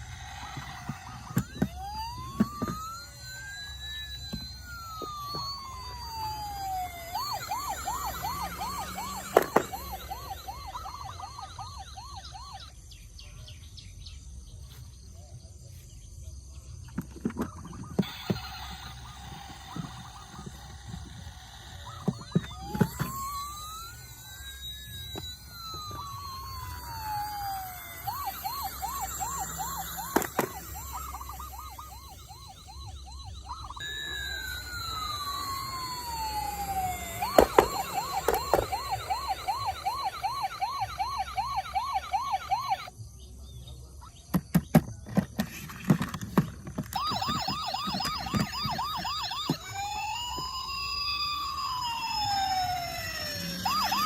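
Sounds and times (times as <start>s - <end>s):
toy siren fast yelp: 0.0s - 13.0s, 17.2s - 54.0s
toy siren wailing: 0.0s - 13.4s, 16.9s - 54.0s.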